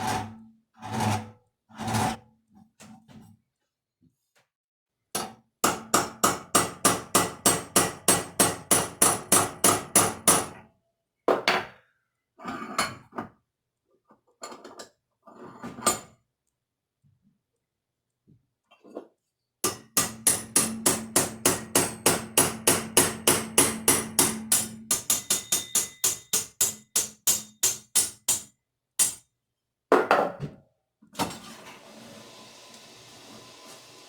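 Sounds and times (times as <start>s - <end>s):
hammer tapping on metal: 5.2s - 10.6s, 19.7s - 29.2s.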